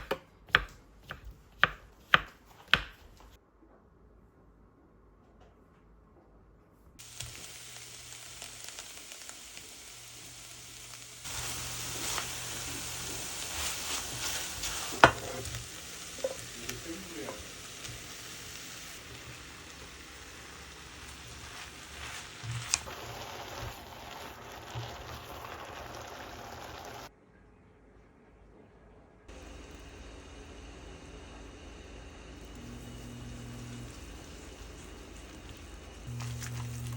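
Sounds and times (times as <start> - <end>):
food sizzling in a pan: 7.0 - 27.1, 32.6 - 36.9
stirring in a pan: 11.2 - 27.1, 32.9 - 36.9.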